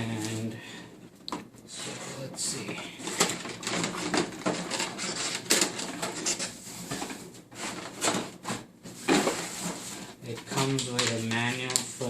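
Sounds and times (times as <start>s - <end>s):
cardboard scraping: 1.8s - 12.0s
packaging rustling: 3.0s - 12.0s.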